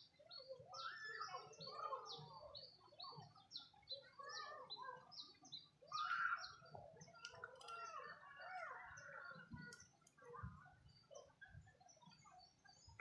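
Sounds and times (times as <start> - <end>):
high bird chirps: 0.0 - 10.2
bird warbling calls: 0.0 - 10.6.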